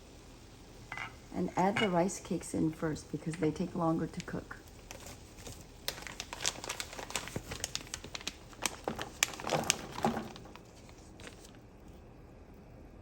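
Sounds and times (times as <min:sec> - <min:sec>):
plastic packet crinkling: 0:04.2 - 0:11.6.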